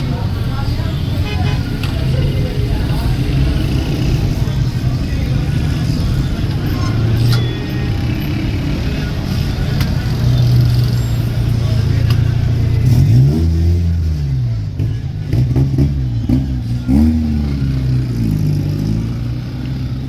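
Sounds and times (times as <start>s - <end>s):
vehicle engine revving: 0.0s - 20.0s.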